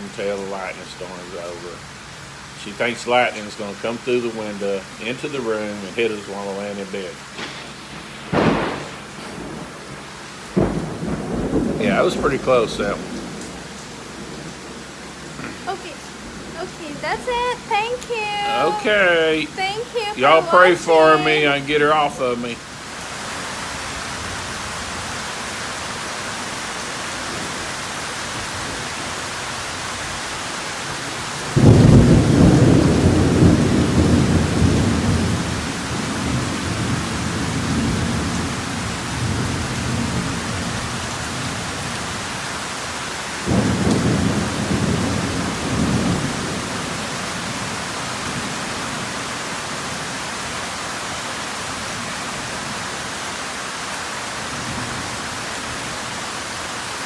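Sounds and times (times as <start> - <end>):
heavy rain falling: 0.0 - 57.0
thunder rumbling: 3.1 - 22.8, 27.2 - 42.4, 43.4 - 49.3.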